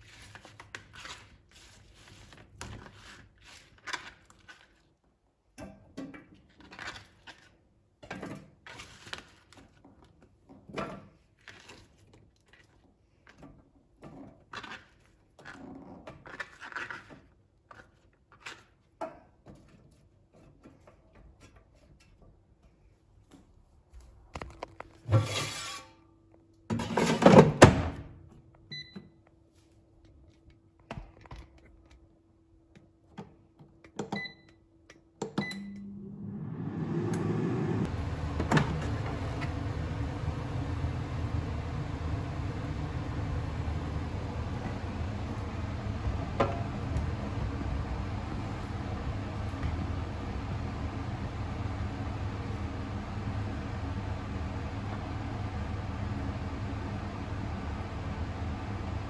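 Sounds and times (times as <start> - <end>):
kitchen knocks and clatters: 26.7 - 28.0
low steady hum: 35.4 - 59.0.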